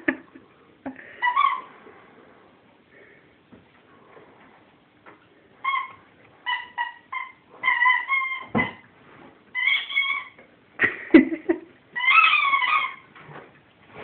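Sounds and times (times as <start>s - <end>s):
rubber squeaky toy squeaking: 5.6s - 8.8s, 9.6s - 10.4s, 12.0s - 13.0s.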